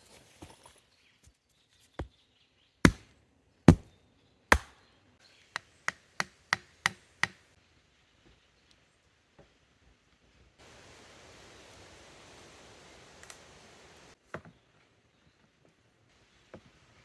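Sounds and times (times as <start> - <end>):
axe chopping wood: 2.8 - 3.9, 4.5 - 4.8, 5.5 - 7.4.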